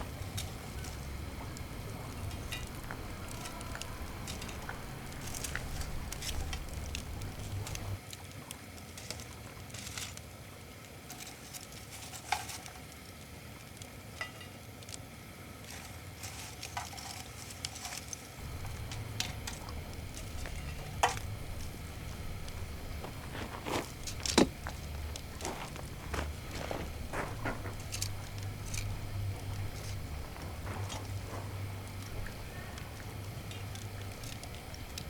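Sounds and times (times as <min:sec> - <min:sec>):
fire crackles and pops: 0:00.0 - 0:35.0
food sizzling over fire: 0:00.0 - 0:35.0
low rumble: 0:18.4 - 0:35.0.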